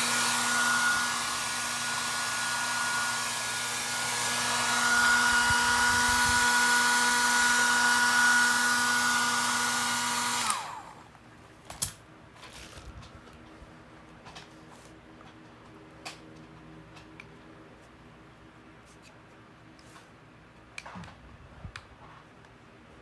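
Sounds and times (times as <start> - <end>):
hair dryer blowing: 0.0 - 11.1.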